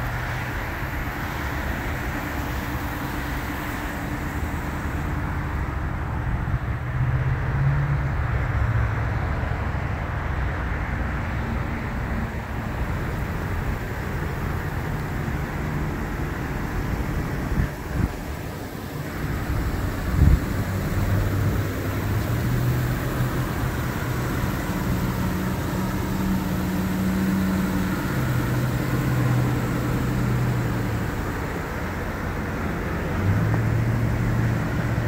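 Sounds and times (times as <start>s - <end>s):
engine idling hum: 0.0s - 35.0s
road traffic: 0.0s - 35.0s.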